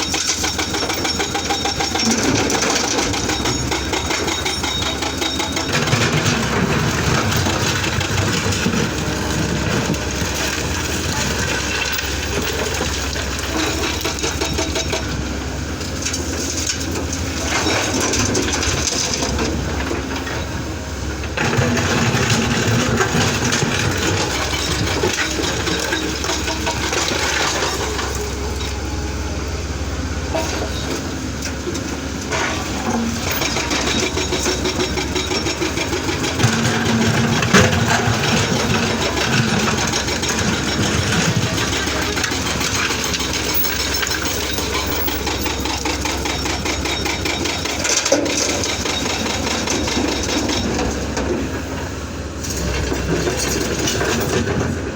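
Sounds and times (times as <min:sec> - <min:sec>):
excavator diesel engine running: 0:00.0 - 0:54.9
metal clatter: 0:30.3 - 0:54.7.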